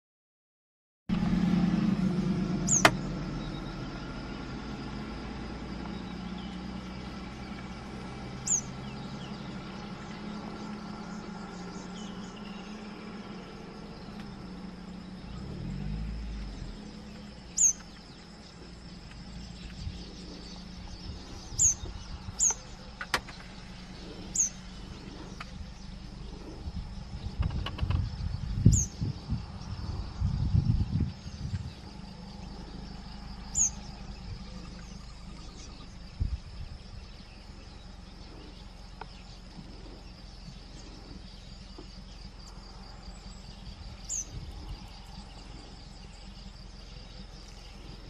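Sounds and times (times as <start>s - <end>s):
vehicle engine idling: 1.1s - 48.0s
bird high-pitched calls: 2.6s - 3.9s, 8.4s - 14.4s, 17.1s - 29.2s, 31.6s - 36.0s, 43.3s - 48.0s.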